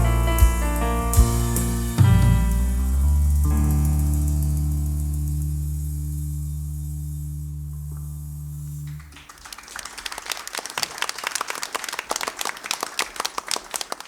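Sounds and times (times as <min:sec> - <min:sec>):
low piano note ringing: 0:00.0 - 0:09.0
audience applauding: 0:09.0 - 0:14.0.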